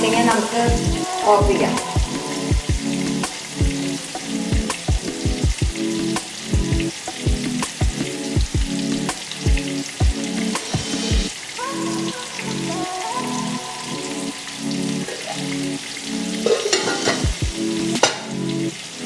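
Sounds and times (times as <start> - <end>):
background music with a beat: 0.0 - 19.0
chicken sizzling in hot oil: 14.0 - 19.0.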